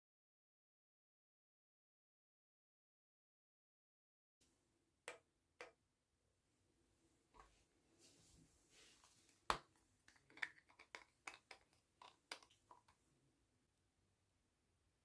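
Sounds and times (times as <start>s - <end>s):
soft rustling: 7.4s - 9.5s
light clicks and taps: 9.5s - 13.0s.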